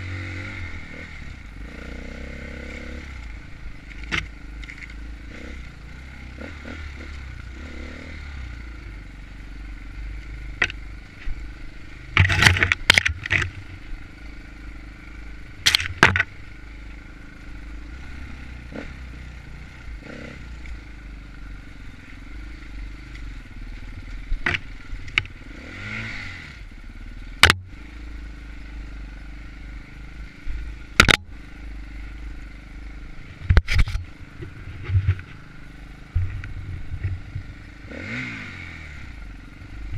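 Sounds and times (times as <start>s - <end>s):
dirt bike engine running: 0.0s - 39.9s
sharp knocks and clatter: 12.1s - 13.6s, 15.6s - 16.3s, 24.4s - 25.3s.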